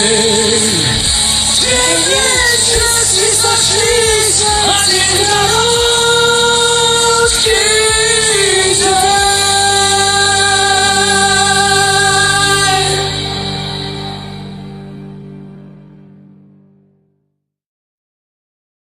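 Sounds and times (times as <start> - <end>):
karaoke backing track: 0.0 - 17.0
woman singing: 1.6 - 13.4.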